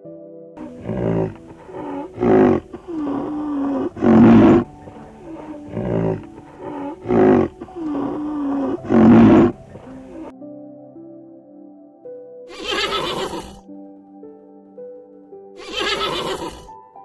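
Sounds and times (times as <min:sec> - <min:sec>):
animal calling harshly: 0:00.6 - 0:10.3, 0:12.5 - 0:13.6, 0:15.6 - 0:16.7.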